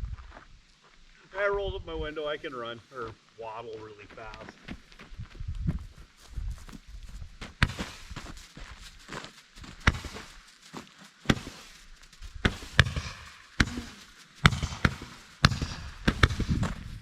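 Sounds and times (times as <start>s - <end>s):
firework crackle: 11.2s - 16.6s.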